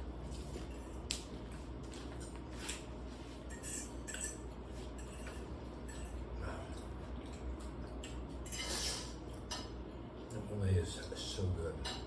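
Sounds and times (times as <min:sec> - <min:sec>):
low steady hum: 0:00.0 - 0:12.0
cutlery clinking on plates: 0:02.1 - 0:06.2, 0:07.2 - 0:09.8.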